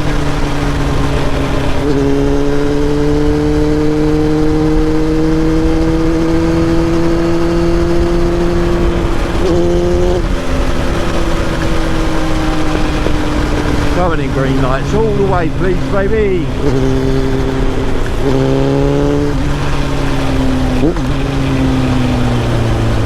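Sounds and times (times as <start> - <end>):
motorcycle engine running: 0.0 - 23.0
road noise: 0.0 - 23.0
wind noise: 0.0 - 23.0.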